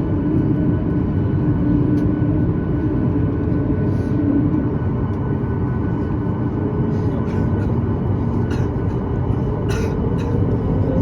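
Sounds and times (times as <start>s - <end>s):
airplane cabin rumble: 0.0s - 11.0s.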